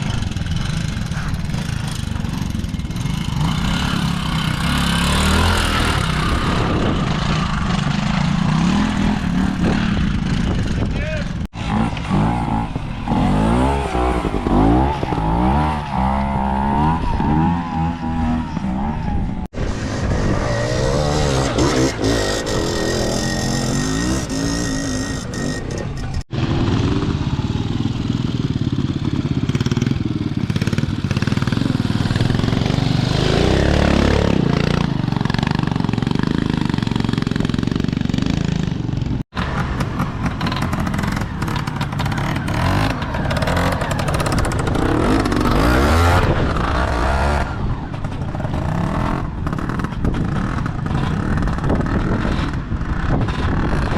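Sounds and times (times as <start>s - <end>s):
motorcycle engines revving: 0.0s - 53.9s.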